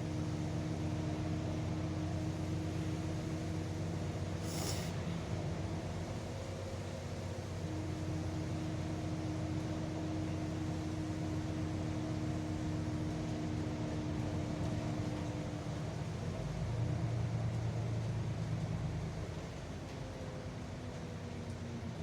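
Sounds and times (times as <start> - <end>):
bus engine hum: 0.0 - 21.8.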